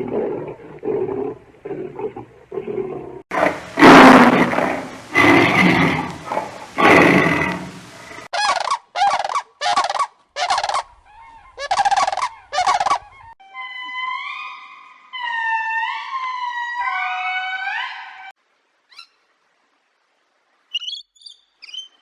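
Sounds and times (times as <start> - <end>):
short rattling animal calls: 8.3 - 10.9, 11.6 - 13.1.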